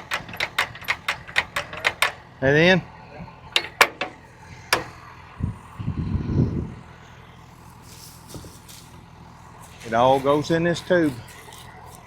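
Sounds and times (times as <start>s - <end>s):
sharp knocks: 0.0s - 2.2s, 3.6s - 5.0s
tractor idling: 0.0s - 12.0s.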